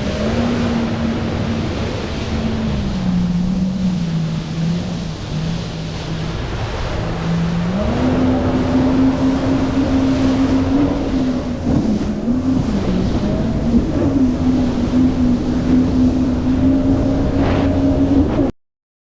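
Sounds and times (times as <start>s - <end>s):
jet ski engine running: 0.0s - 18.5s
rushing water: 0.0s - 18.5s
wind: 0.0s - 18.5s.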